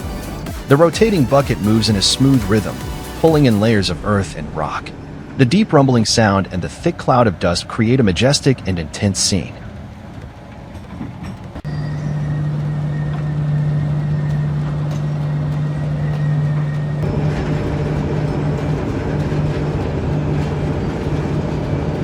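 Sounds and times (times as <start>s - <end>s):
heavy machinery engine droning: 0.0s - 22.0s.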